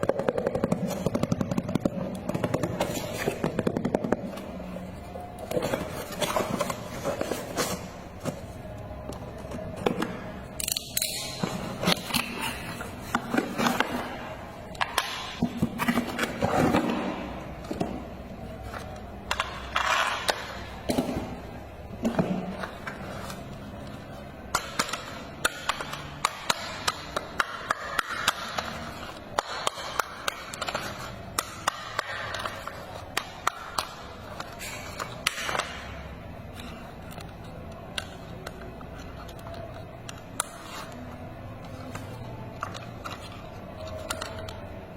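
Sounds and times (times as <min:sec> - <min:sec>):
plastic toy clicks and knocks: 0:22.0 - 0:41.0.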